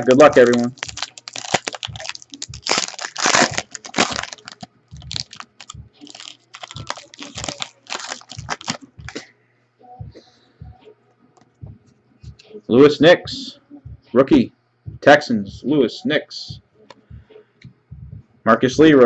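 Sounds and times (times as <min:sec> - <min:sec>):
wrapper being torn and crinkled: 0:00.0 - 0:09.2.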